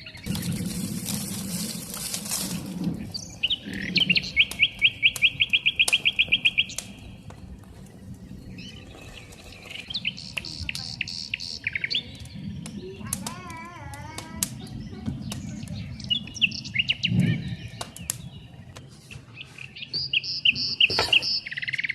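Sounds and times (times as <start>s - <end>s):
songbird trilling: 0.0s - 7.3s, 8.4s - 13.5s, 19.4s - 21.9s
hissing noise: 0.2s - 11.0s.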